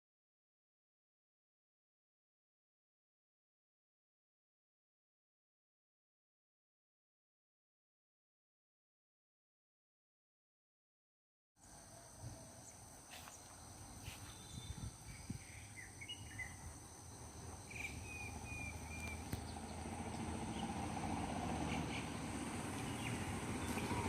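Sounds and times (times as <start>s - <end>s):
insects trilling: 11.6s - 23.8s
bird chirps: 12.4s - 20.9s.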